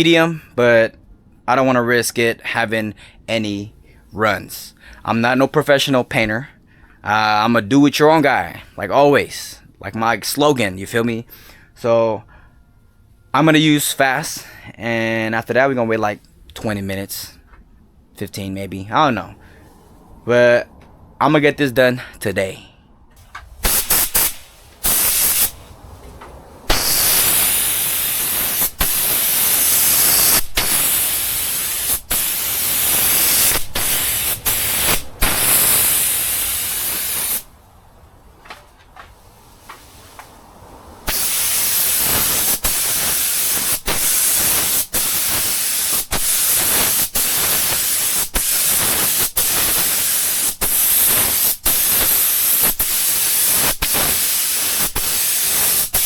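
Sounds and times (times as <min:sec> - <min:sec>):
paint spray gun hissing: 0:23.4 - 0:25.7, 0:26.6 - 0:37.5, 0:41.0 - 0:56.0.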